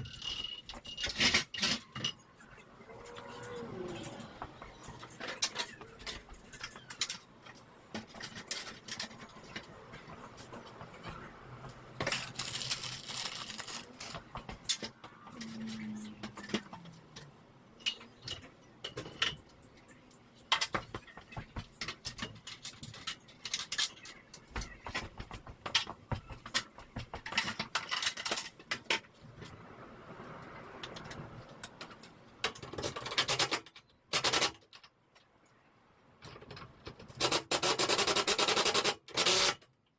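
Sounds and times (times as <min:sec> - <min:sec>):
rustling noise: 0:05.9 - 0:14.7.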